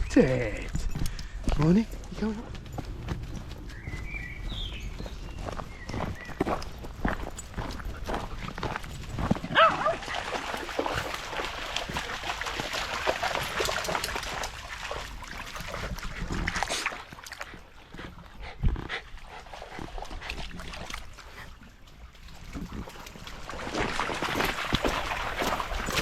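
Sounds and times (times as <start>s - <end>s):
dog barking: 9.5s - 10.2s.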